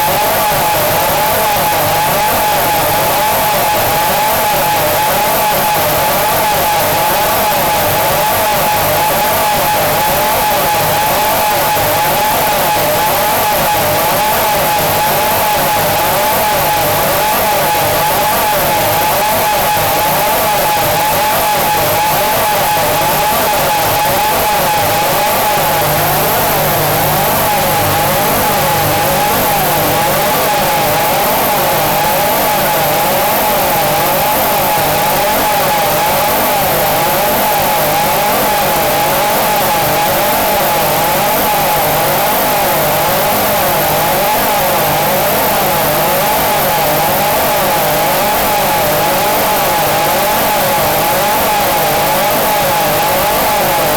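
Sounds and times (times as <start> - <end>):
wall of distorted noise: 21.1 - 34.8
thin high whine: 21.9 - 34.0
warbling tone: 23.8 - 32.7.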